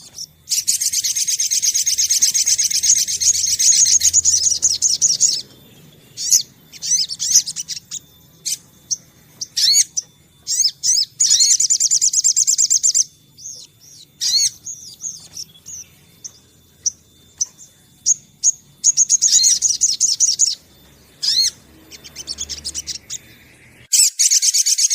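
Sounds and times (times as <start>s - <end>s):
bird chirps: 0.0s - 24.9s
songbird trilling: 0.0s - 24.9s.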